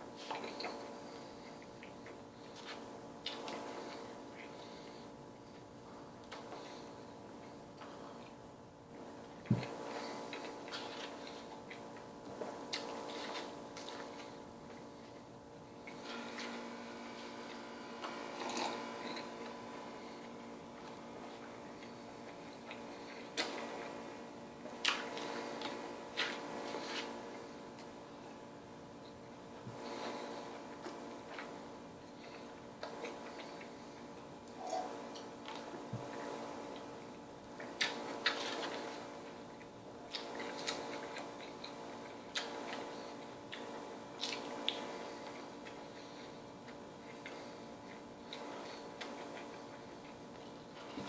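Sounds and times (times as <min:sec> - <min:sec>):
steady hum: 0:00.0 - 0:51.0
chewing noises: 0:00.2 - 0:16.6, 0:17.4 - 0:28.0, 0:29.0 - 0:51.0
mouth clicks and smacks chewing: 0:39.6 - 0:42.9, 0:43.5 - 0:45.8.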